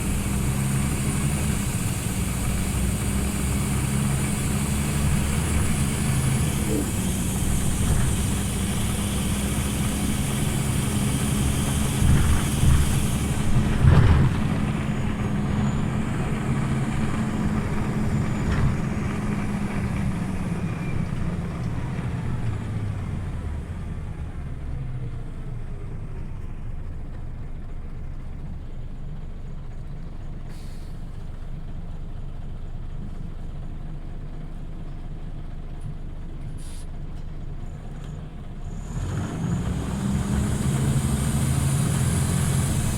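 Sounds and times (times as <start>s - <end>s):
bus engine running: 0.0s - 42.9s
air hiss: 36.6s - 36.9s.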